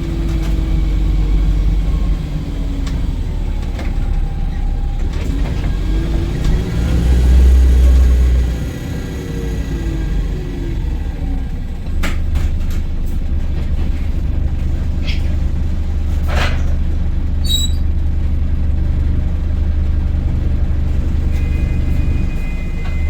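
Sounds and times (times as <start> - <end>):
bus drivetrain rumble: 0.0 - 23.0
interior rattles and clicks: 11.8 - 17.1.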